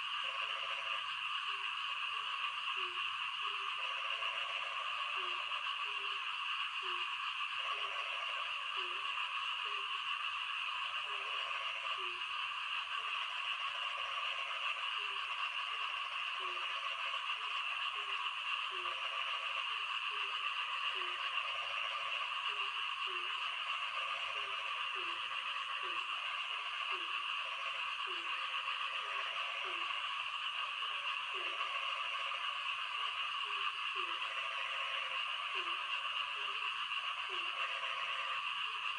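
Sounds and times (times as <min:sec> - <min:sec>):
frogs croaking: 0:00.0 - 0:38.9
high-pitched frog chorus: 0:00.0 - 0:38.9.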